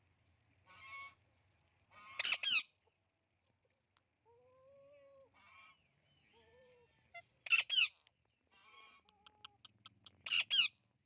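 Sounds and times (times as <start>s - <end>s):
bird calls: 4.5s - 10.8s.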